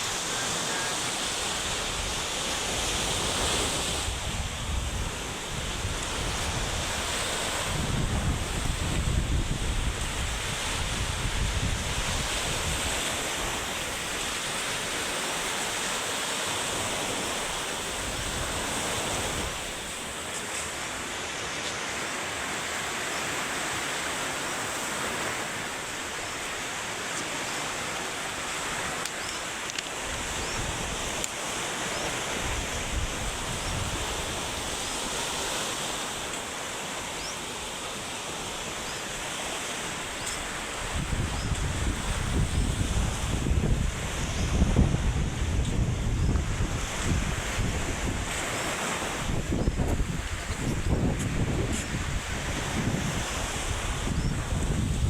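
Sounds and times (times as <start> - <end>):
wind gusting over microphone: 0.0 - 16.0, 16.6 - 21.2, 28.3 - 36.4, 38.3 - 55.0
sea surf crashing: 0.0 - 55.0.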